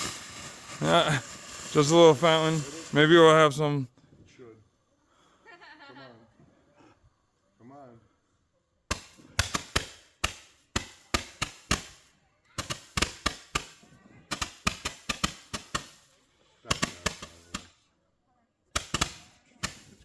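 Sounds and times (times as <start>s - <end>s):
firework crackling pops: 0.0s - 3.6s, 8.9s - 17.8s, 18.7s - 20.0s.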